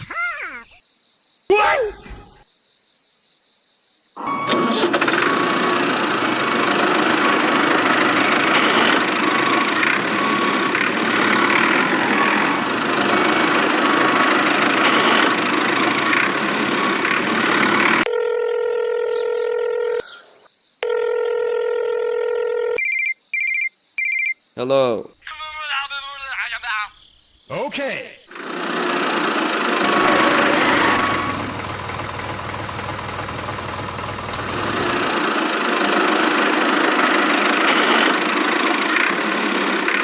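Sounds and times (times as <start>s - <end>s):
engine running with ticks: 5.0s - 18.1s, 28.3s - 40.0s
telephone calling tone beeps: 18.1s - 20.1s, 20.8s - 23.0s.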